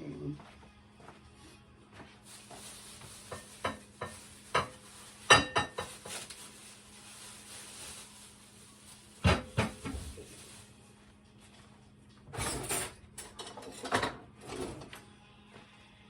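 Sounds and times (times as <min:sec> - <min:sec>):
dishes and utensils clattering: 0:02.5 - 0:06.4, 0:09.2 - 0:10.3, 0:12.3 - 0:14.9.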